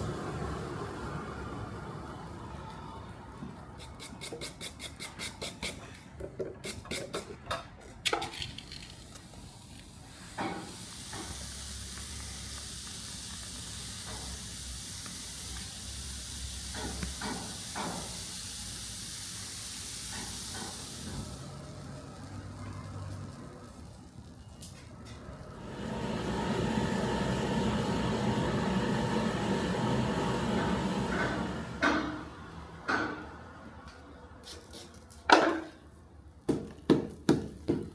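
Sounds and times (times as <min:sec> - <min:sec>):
steady hiss: 0:09.2 - 0:24.2.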